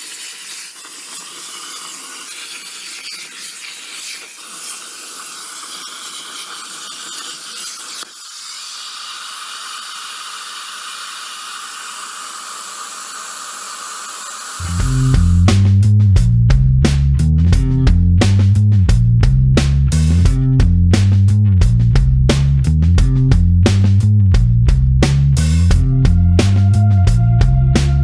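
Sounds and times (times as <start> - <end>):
plasma cutter hissing: 0.0 - 15.5.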